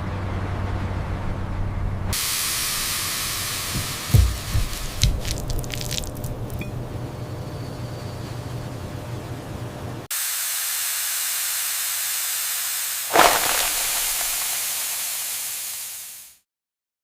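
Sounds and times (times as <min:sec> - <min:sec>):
steady high hiss: 0:13.1 - 0:16.4.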